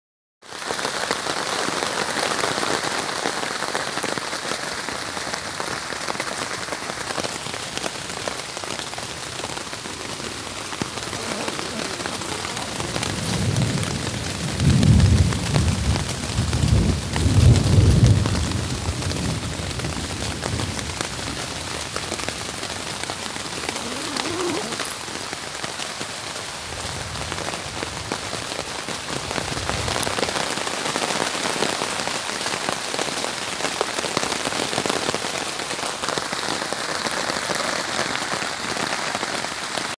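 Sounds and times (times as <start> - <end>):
rain falling on a tent: 0.4 - 39.9
low thunder rumbling: 11.0 - 21.6.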